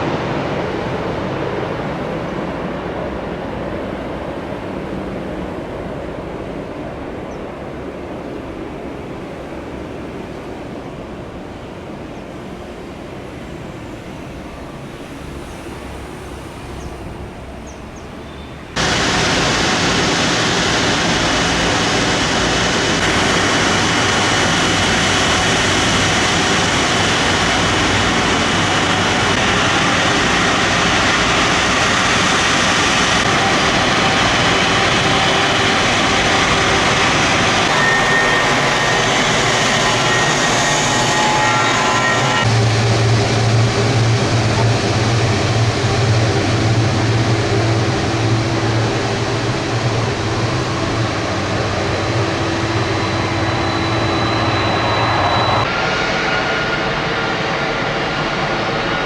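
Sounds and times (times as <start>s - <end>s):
high jet engine whine: 0.0s - 59.0s
jet engines roaring: 0.0s - 59.0s
even rushing noise: 18.7s - 59.0s.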